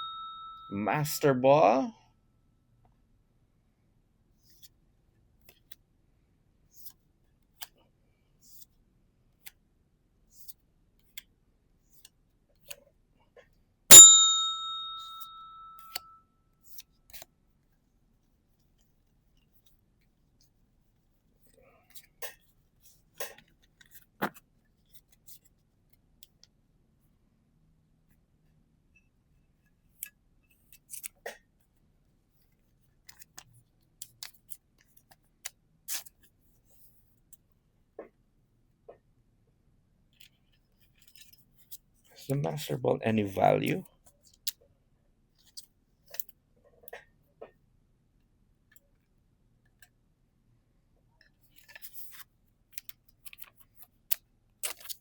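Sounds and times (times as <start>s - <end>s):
small bell ringing: 0.0s - 0.8s, 13.9s - 16.1s.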